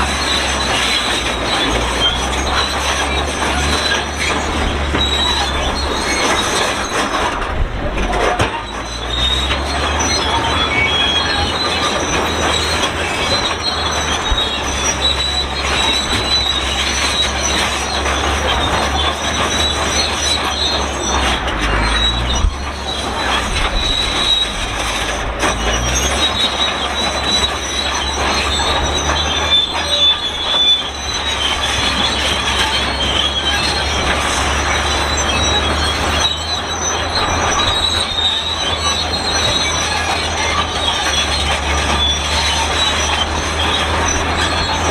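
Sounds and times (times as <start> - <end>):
bulldozer tracks squealing: 0.0 - 44.9
diesel engine rumbling: 0.0 - 44.9.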